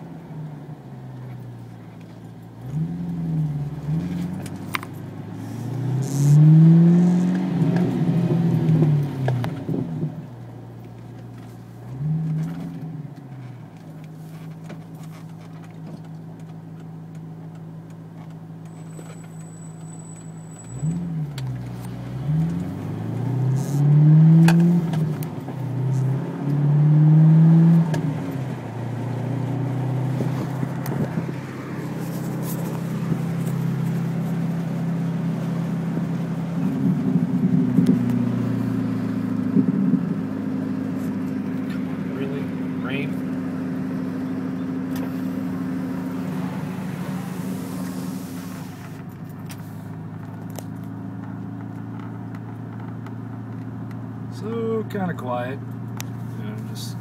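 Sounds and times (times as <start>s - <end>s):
car engine accelerating: 0.0s - 57.0s
low engine drone: 21.9s - 50.6s.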